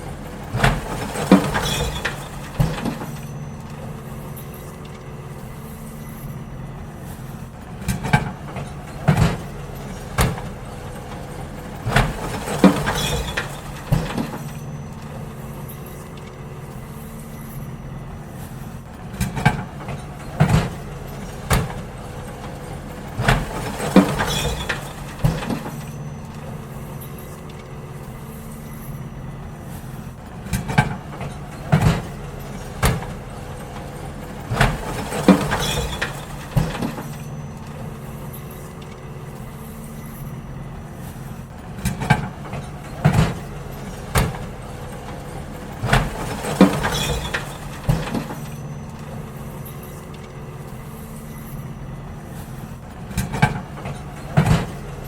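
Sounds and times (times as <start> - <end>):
bins clattering and banging: 0.0 - 55.0
garbage truck engine hum: 0.0 - 55.0.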